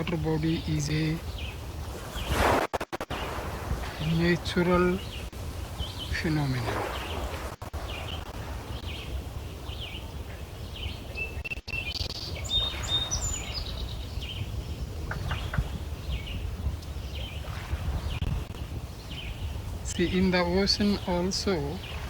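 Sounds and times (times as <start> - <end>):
small birds chirping: 0.0 - 22.0
bright whistled bird notes: 10.7 - 14.4.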